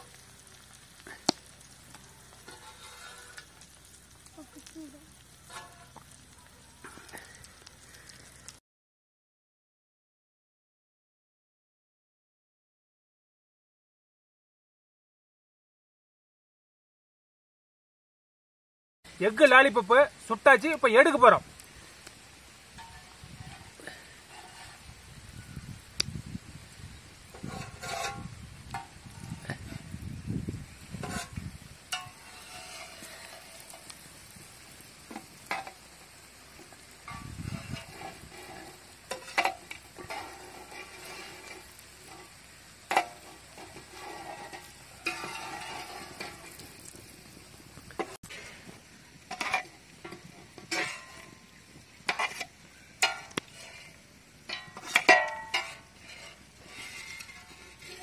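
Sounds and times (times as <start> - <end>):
food sizzling in oil on griddle: 0.0 - 8.6, 19.2 - 58.0
metal spatula scraping griddle: 2.2 - 4.0, 5.4 - 6.1, 22.7 - 25.4, 27.3 - 30.0, 31.0 - 46.8, 48.0 - 58.0.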